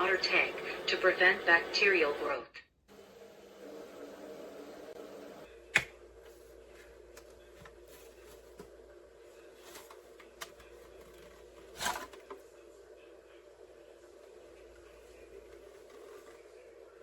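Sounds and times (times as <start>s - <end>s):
docking base humming: 0.0s - 9.5s.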